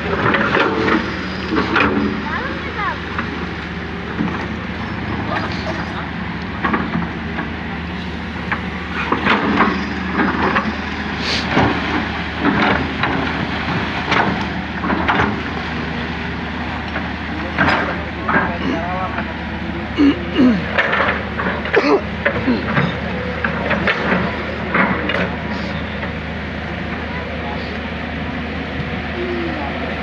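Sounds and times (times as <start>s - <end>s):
excavator bucket scraping rock: 0.0s - 3.5s, 8.4s - 15.8s
diesel engine running: 0.0s - 30.0s.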